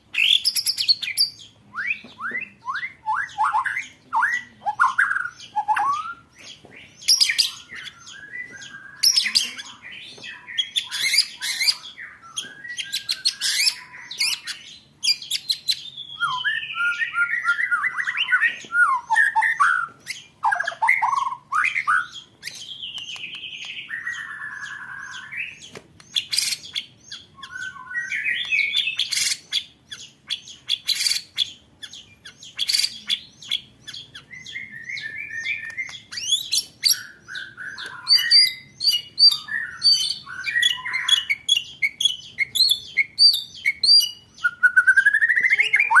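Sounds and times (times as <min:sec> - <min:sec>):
songbird whistled phrases: 0:00.2 - 0:46.0.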